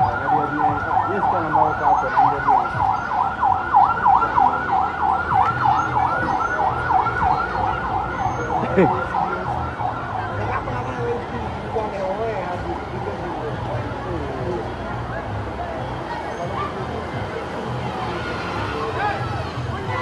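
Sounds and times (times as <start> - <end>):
ambulance siren yelp: 0.0 - 10.8.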